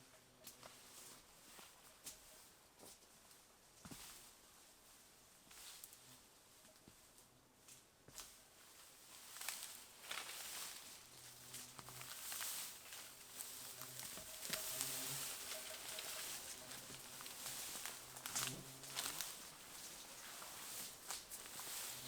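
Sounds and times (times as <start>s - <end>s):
dry undergrowth rustling and snapping: 7.7s - 22.0s.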